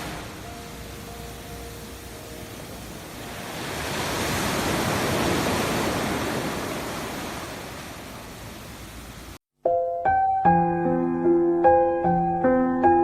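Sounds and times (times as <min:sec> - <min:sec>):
wave breaking: 0:00.0 - 0:00.4, 0:03.1 - 0:08.6.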